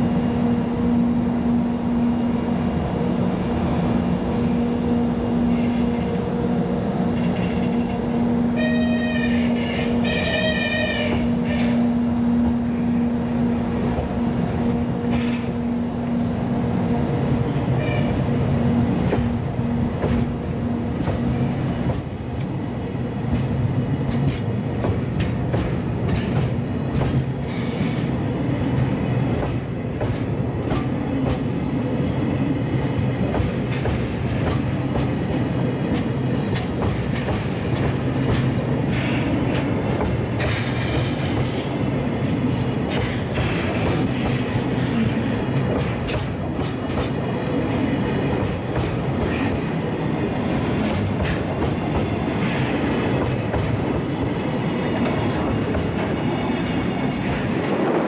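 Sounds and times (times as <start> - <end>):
freight train rumbling past: 0.0 - 58.0
wheels clicking over rail joints: 7.2 - 8.1.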